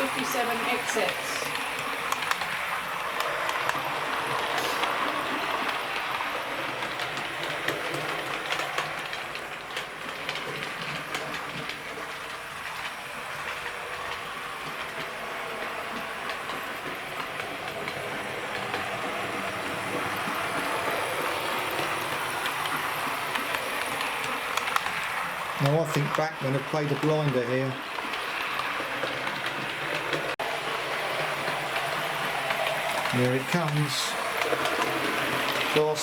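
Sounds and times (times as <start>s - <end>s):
model train motor whirring: 0.0s - 36.0s
wheels clicking over rail joints: 0.0s - 36.0s.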